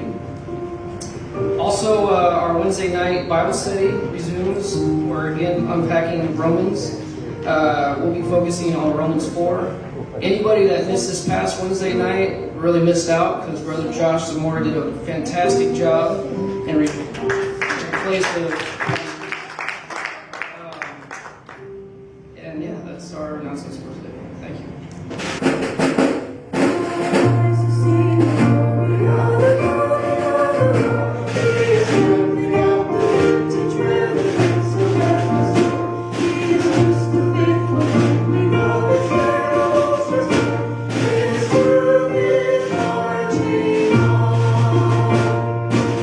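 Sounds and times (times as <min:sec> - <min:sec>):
drum hits: 0:25.1 - 0:46.0
voices singing together: 0:26.6 - 0:46.0.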